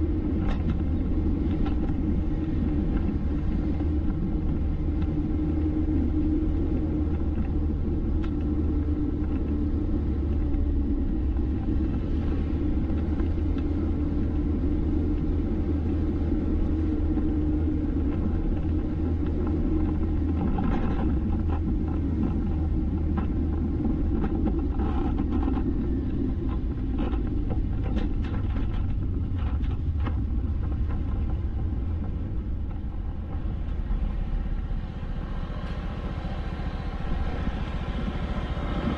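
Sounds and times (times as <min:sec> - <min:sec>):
vehicle driving on road: 0:00.0 - 0:38.9.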